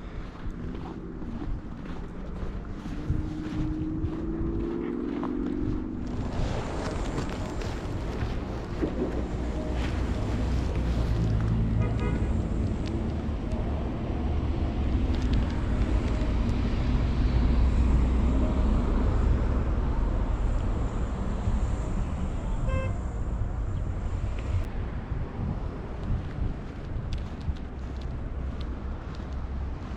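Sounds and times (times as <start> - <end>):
traffic rumble: 0.0 - 29.9
car horn toot: 11.8 - 12.4, 22.4 - 23.1.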